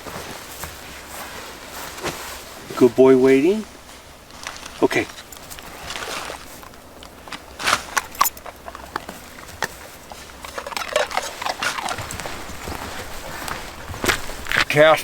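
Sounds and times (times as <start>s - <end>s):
dog crunching treat: 4.3s - 14.8s.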